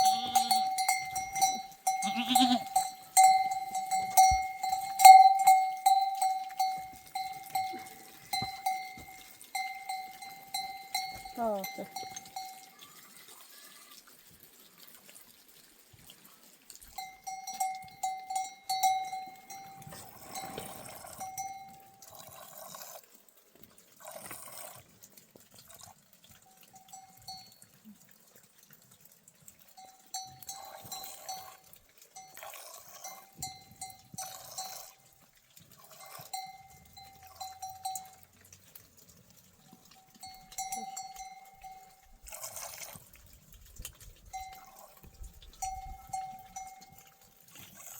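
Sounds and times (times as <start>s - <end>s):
livestock bell ringing: 0.0s - 13.2s, 16.9s - 22.2s, 26.5s - 27.8s, 29.7s - 35.2s, 35.8s - 38.4s, 39.6s - 42.3s, 44.3s - 44.8s, 45.6s - 47.4s.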